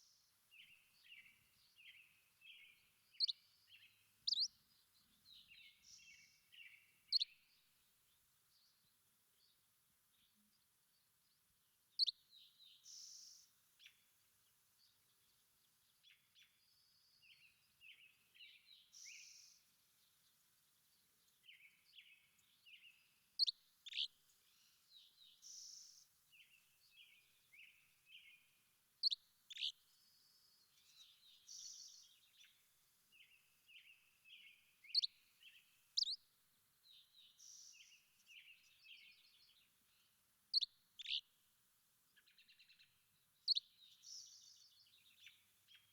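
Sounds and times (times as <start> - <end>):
songbirds chirping: 0.0 - 45.9.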